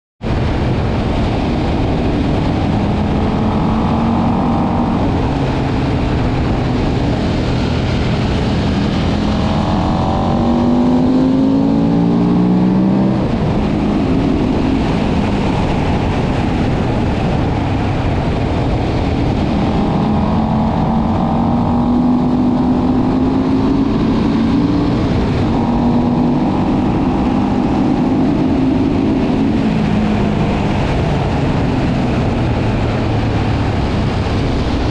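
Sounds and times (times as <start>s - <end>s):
wind noise: 0.2s - 34.9s
motorcycle engine accelerating: 0.3s - 34.9s.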